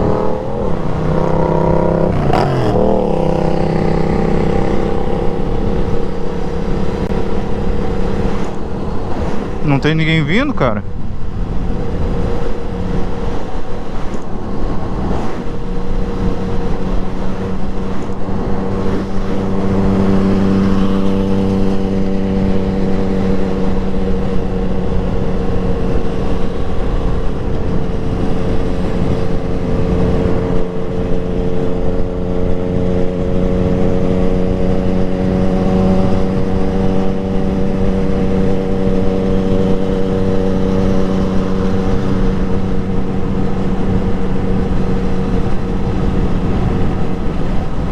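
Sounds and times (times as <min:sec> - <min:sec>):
motorcycle engine running: 0:00.0 - 0:09.7, 0:10.9 - 0:47.9.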